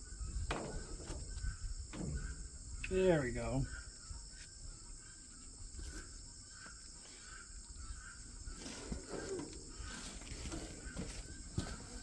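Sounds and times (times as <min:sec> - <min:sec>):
faint insect trilling chorus: 0:00.0 - 0:12.0
faint scuffs and knocks: 0:08.6 - 0:12.0.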